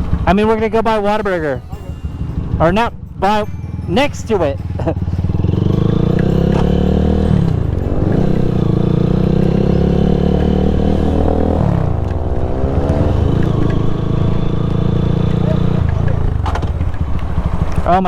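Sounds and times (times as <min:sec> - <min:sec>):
small motorcycle engine running: 0:00.0 - 0:18.0.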